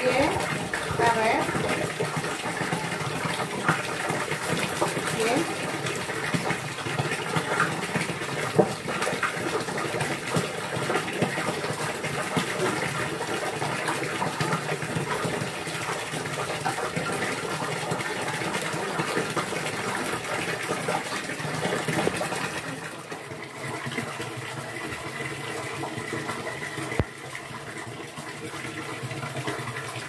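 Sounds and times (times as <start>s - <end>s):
running water rushing and splashing: 0.0s - 30.0s.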